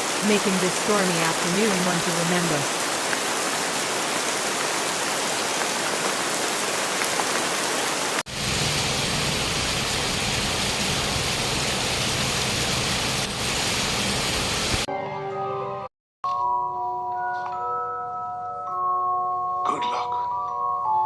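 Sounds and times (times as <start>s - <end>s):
heavy rain: 0.0s - 14.9s.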